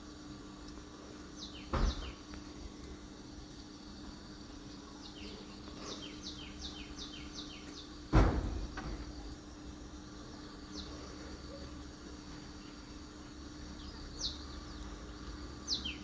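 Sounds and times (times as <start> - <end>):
loud thump: 1.7 - 2.2, 8.1 - 9.2.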